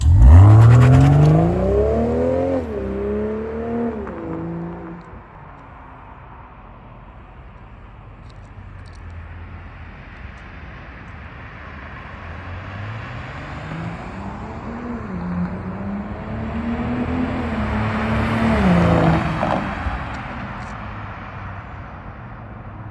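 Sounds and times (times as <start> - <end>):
car engine rumble approaching: 0.0 - 6.4.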